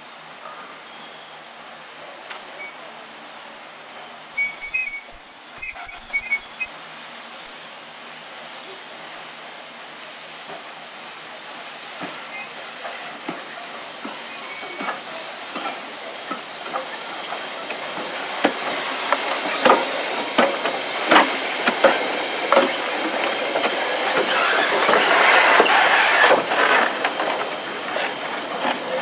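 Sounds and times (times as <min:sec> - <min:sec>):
train wheels squealing: 0:02.3 - 0:07.9, 0:09.1 - 0:09.7, 0:11.3 - 0:12.7, 0:13.5 - 0:15.8, 0:16.8 - 0:29.0.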